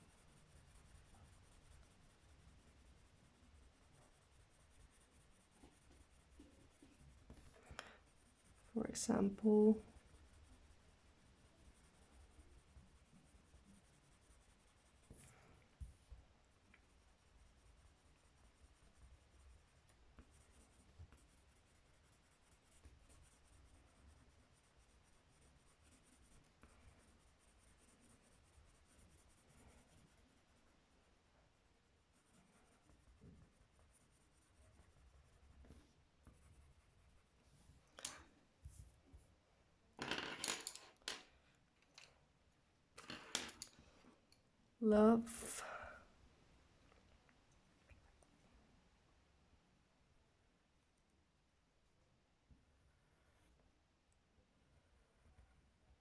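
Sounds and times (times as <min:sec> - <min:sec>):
pen scratching on paper: 0:00.0 - 0:15.5, 0:16.8 - 0:30.5.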